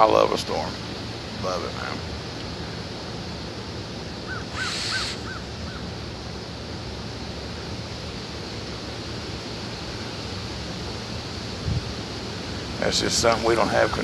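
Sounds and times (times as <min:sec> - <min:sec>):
bird calling: 0:04.2 - 0:05.9, 0:13.3 - 0:14.0.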